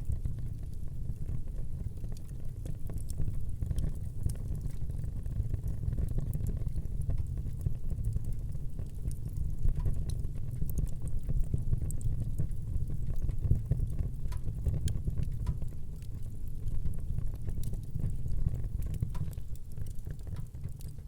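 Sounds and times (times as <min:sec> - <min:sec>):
fire crackling in fireplace: 0:00.0 - 0:21.0.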